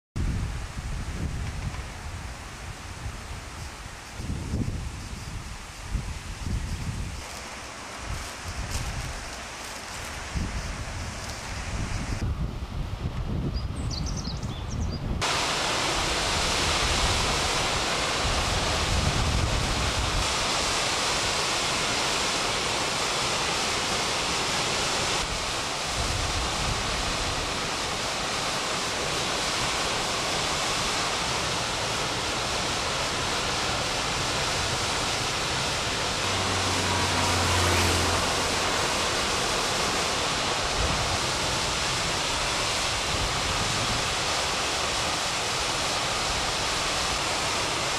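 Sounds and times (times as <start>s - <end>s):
waterfall rushing: 7.2s - 12.2s, 15.2s - 47.9s.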